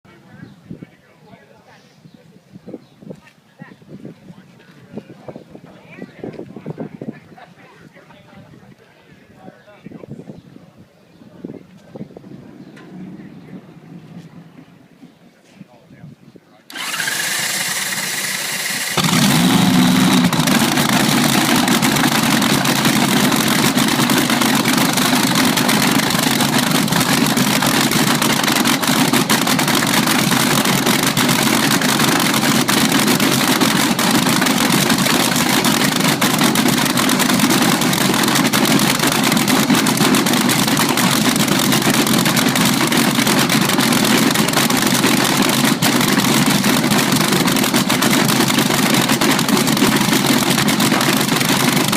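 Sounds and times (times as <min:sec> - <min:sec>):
race car engine idling: 0:16.7 - 0:51.9.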